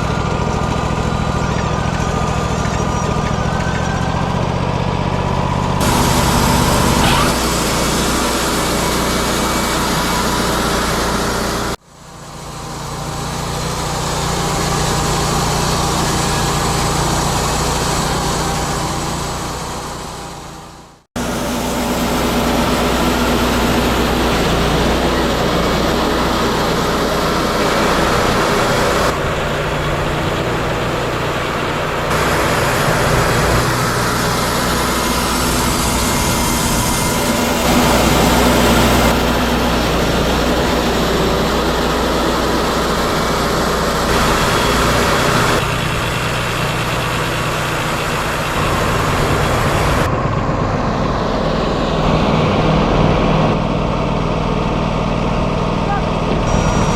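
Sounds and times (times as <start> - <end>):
band saw cutting: 0.0 - 53.7, 56.2 - 56.9
sawmill engine running: 0.0 - 56.9.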